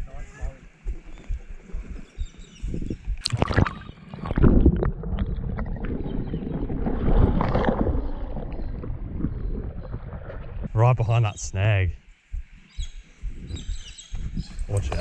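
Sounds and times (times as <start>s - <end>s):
water splashing and sloshing: 2.7s - 11.0s.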